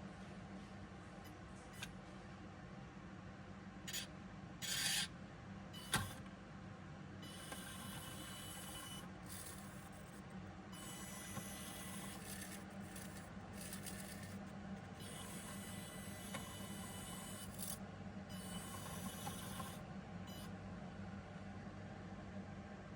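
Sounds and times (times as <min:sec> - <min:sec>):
steady low hum: 0:00.0 - 0:22.9
small electric motor whirring: 0:07.3 - 0:10.1, 0:10.8 - 0:14.4, 0:15.0 - 0:17.8, 0:18.4 - 0:19.8.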